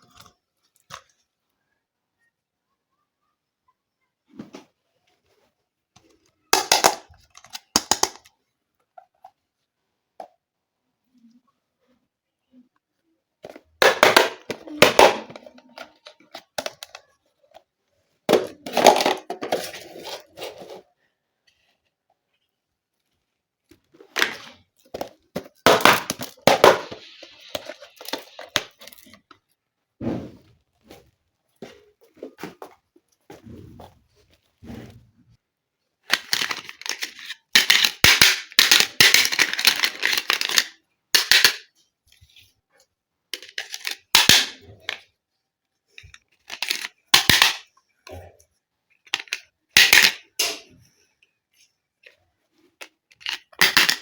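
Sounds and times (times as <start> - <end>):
plastic toy pieces clicking: 6.6 - 8.3, 13.8 - 17.0, 36.1 - 41.7, 43.4 - 45.0, 46.4 - 47.6, 49.1 - 50.2, 52.8 - 54.0.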